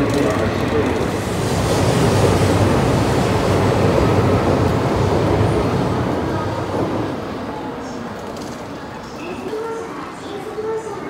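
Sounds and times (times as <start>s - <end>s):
train wheels rumbling: 0.0s - 8.7s.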